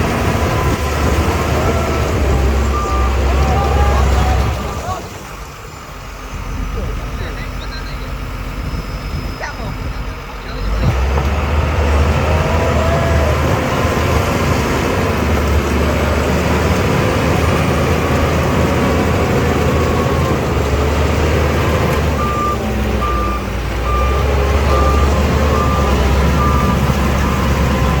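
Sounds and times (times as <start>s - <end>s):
bulldozer diesel engine running: 0.0s - 28.0s
reversing alarm beeps: 22.2s - 28.0s.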